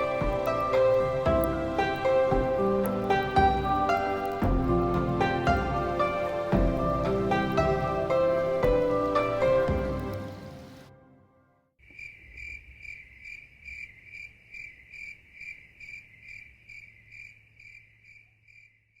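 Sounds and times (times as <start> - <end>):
music: 0.0 - 11.6
insect chirping: 11.8 - 19.0.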